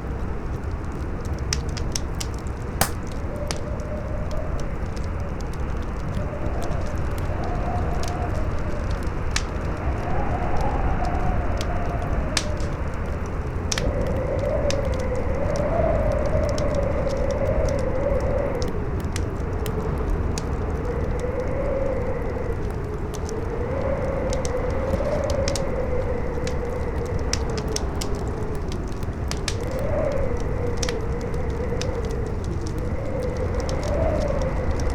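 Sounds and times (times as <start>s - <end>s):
campfire crackling and popping: 0.6s - 3.6s, 11.3s - 34.9s
strong howling wind: 6.2s - 34.9s.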